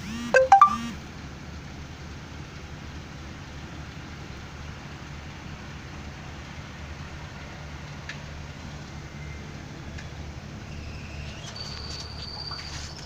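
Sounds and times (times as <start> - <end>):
engine idling: 0.0 - 10.7
short high chirp: 0.4 - 0.9.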